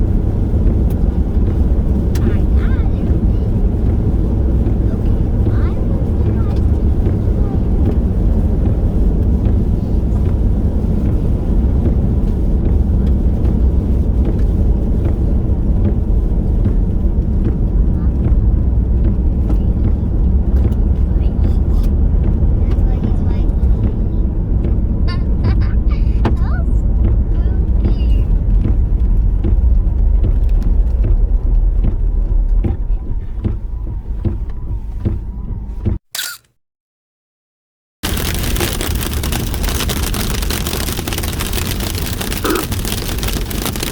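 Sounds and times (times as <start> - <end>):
car road and engine noise: 0.0 - 36.5, 38.0 - 43.9
short repeating clicks: 36.1 - 36.5.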